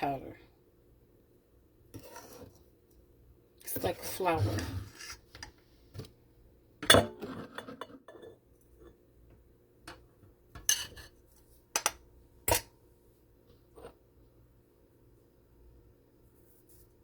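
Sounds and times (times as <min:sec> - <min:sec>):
kitchen items clinking and knocking: 0:06.8 - 0:08.4.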